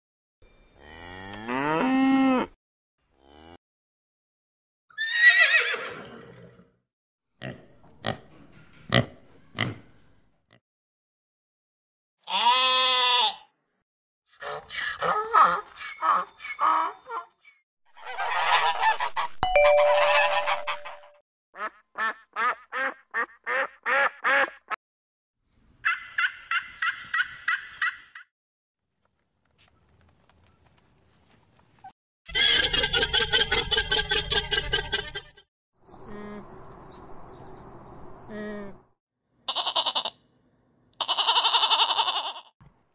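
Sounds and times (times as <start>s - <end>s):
cow mooing: 0.8s - 2.6s, 3.2s - 3.6s
horse whinnying: 4.9s - 6.7s
bell-like ding: 19.4s - 21.2s.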